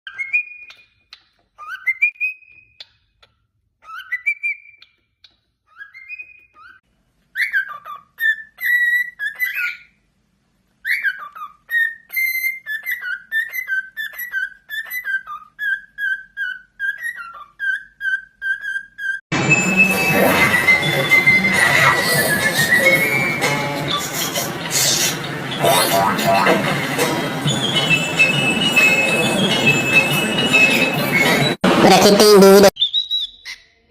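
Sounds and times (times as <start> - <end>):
cockatiel whistling: 1.6 - 3.0, 3.8 - 5.0, 7.4 - 9.9, 10.8 - 25.3, 32.8 - 33.7.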